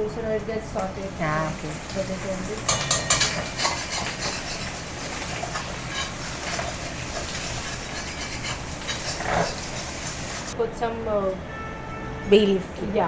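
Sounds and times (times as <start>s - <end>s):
food sizzling in hot oil: 1.2s - 10.6s
utensil clinking against pan: 1.5s - 10.6s.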